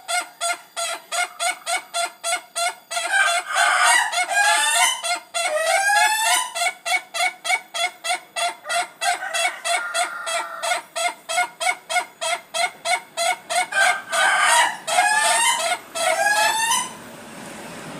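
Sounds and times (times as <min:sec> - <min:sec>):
rooster crowing: 0:03.1 - 0:06.4, 0:08.5 - 0:10.9, 0:13.2 - 0:17.0.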